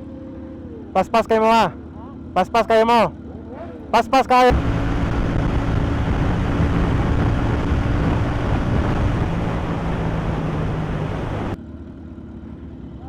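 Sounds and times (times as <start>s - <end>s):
wind rush: 4.5s - 11.6s
motorcycle engine hum: 4.5s - 12.8s.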